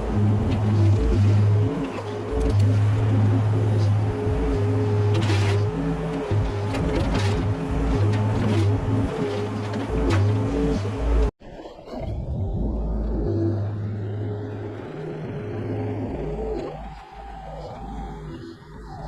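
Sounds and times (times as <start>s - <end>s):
excavator diesel engine: 0.0s - 11.3s.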